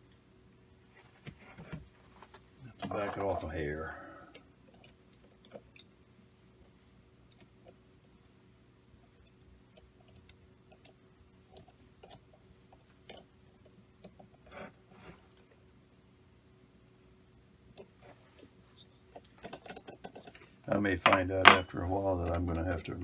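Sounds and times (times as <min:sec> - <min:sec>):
faint steady hum: 0:00.0 - 0:23.0
hand tool tapping metal parts: 0:21.0 - 0:22.4.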